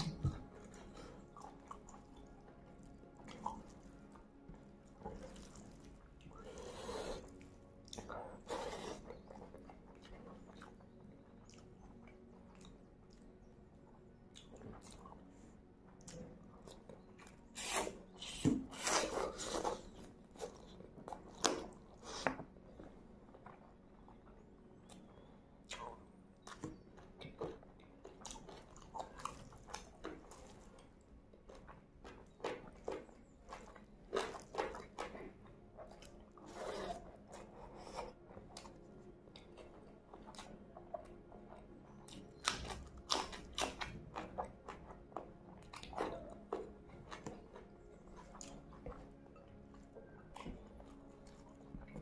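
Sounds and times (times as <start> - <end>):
person chewing food: 0.0 - 52.0
food crunching: 23.3 - 52.0.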